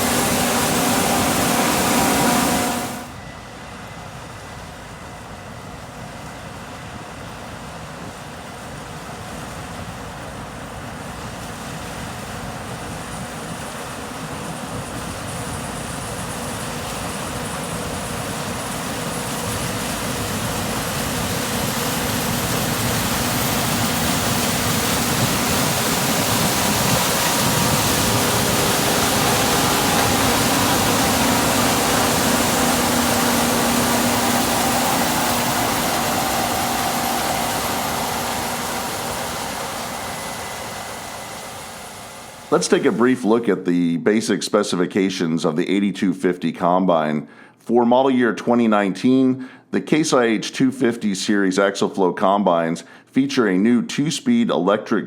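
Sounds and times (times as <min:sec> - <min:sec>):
combine harvester droning: 0:00.0 - 0:04.1, 0:13.8 - 0:43.5.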